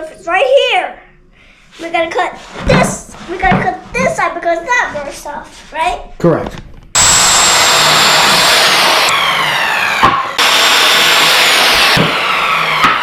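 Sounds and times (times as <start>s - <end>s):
circular saw cutting wood: 7.0s - 13.0s.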